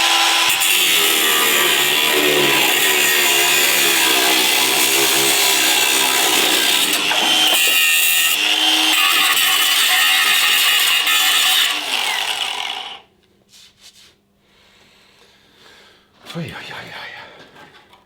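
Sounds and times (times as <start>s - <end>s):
power tool cutting sheet metal: 0.0s - 13.0s.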